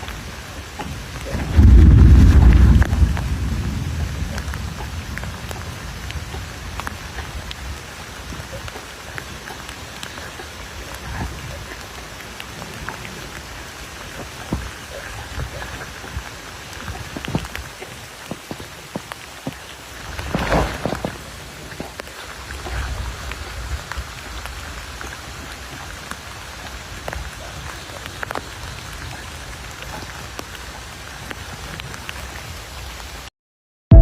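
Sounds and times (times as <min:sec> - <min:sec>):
rain on wooden tabletop: 0:00.0 - 0:33.3
low rumble of thunder: 0:00.9 - 0:08.5.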